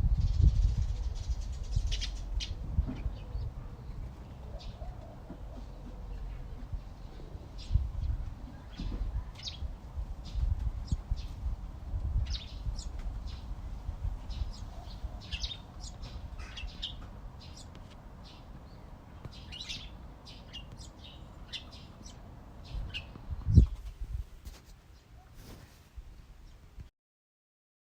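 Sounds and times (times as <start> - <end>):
songbirds chirping: 0.0 - 26.7.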